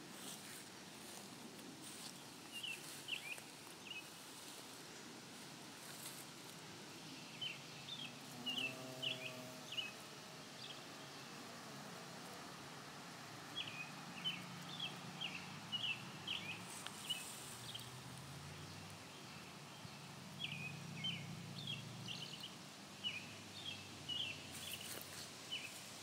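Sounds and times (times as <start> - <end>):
faint hum of bees: 0.0 - 26.0
songbird chirping: 0.0 - 26.0
bee buzzing close by: 8.0 - 10.7.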